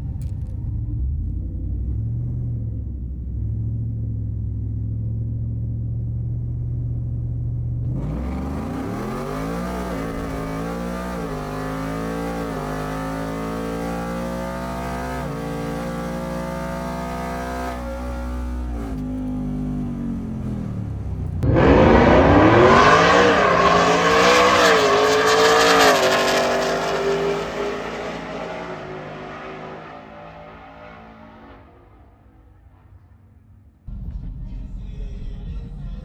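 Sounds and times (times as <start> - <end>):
drag racing engine accelerating: 7.8 - 33.2.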